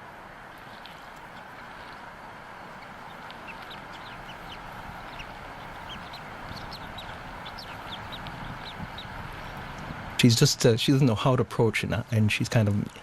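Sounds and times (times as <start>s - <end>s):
rushing background noise: 0.0s - 11.2s
eaglet peeping: 2.7s - 9.8s.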